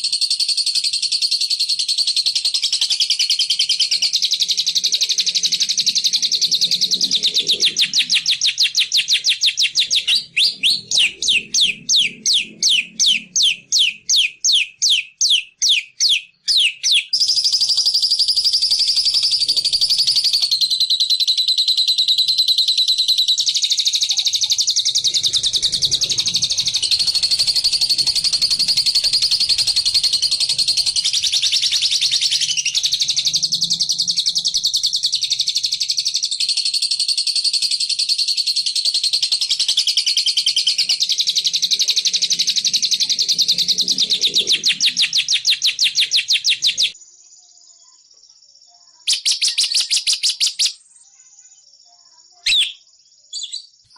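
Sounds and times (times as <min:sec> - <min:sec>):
bird trilling and sweeping notes: 0:24.9 - 0:33.4.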